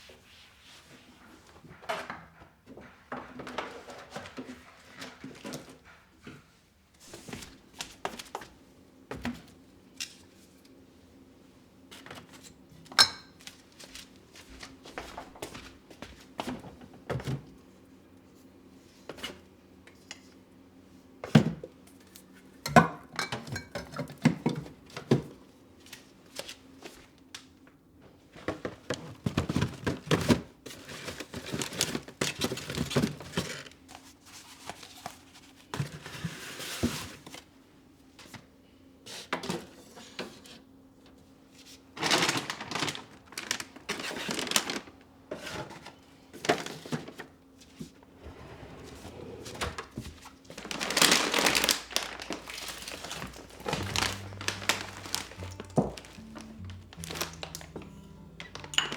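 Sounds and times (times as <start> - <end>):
household items clattering: 50.6 - 56.0
rustling: 50.6 - 58.7
faint steady hum: 52.0 - 58.9.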